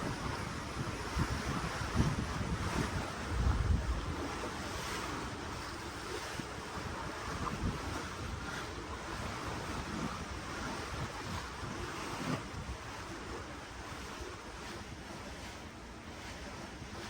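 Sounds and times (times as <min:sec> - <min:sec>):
sea water rushing and splashing: 0:00.0 - 0:17.0
wind rumbling on microphone: 0:00.0 - 0:17.0.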